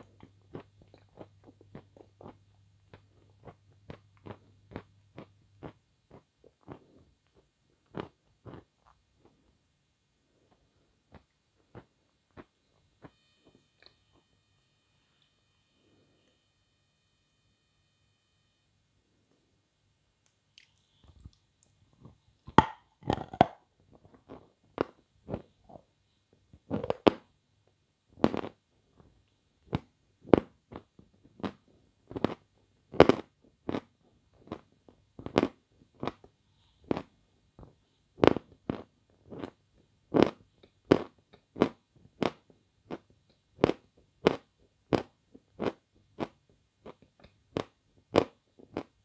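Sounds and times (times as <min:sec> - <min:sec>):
hard sugar being chewed: 0:00.0 - 0:09.5, 0:20.6 - 0:25.8, 0:29.7 - 0:49.0.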